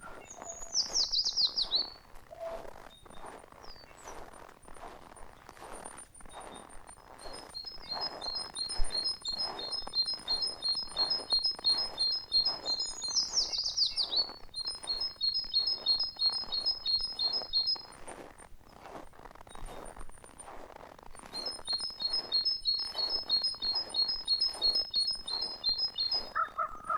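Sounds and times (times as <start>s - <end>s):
songbirds singing high notes: 0.0s - 3.9s, 7.0s - 17.9s, 21.5s - 26.9s
footsteps in snow: 0.0s - 26.9s.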